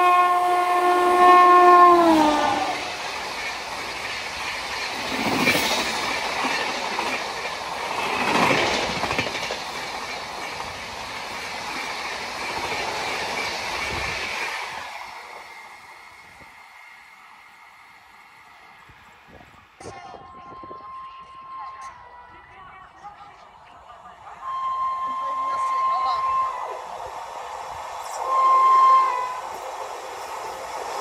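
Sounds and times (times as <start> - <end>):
train horn: 0.0 - 2.9, 20.0 - 22.6, 24.4 - 26.8, 28.1 - 29.6
train wheels clickety-clack: 2.2 - 15.7.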